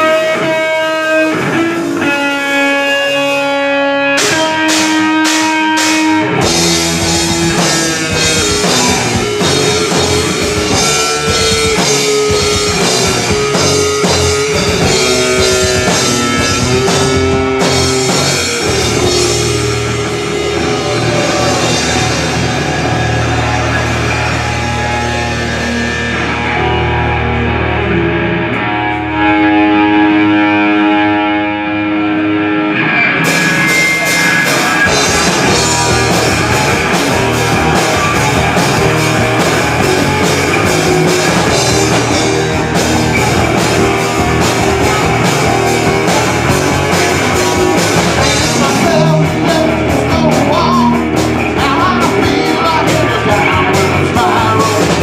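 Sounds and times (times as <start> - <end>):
drums: 0.0 - 55.0
ringing guitar chords: 0.0 - 55.0
rock band playing loudly: 0.0 - 55.0.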